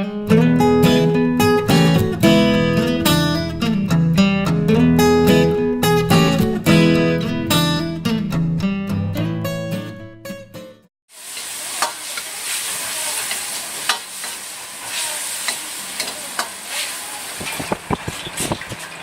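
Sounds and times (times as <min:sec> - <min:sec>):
guitar music: 0:00.0 - 0:10.9
food sizzling in hot pan: 0:11.1 - 0:19.0.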